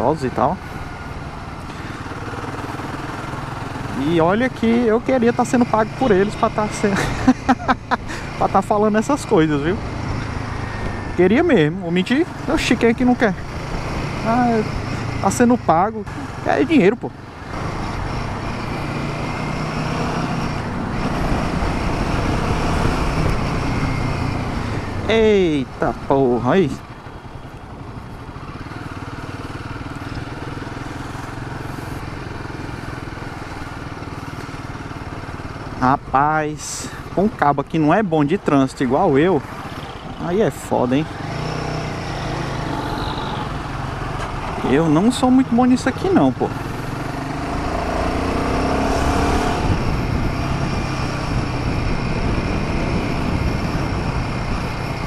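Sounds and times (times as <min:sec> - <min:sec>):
motorcycle engine running: 0:00.0 - 0:55.0
wind noise on microphone: 0:48.8 - 0:55.0.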